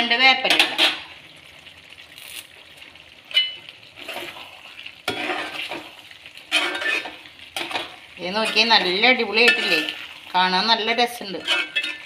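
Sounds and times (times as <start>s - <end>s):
meat sizzling in a pan: 0.2s - 12.0s
spoon scraping and stirring: 3.3s - 10.3s, 11.2s - 12.0s.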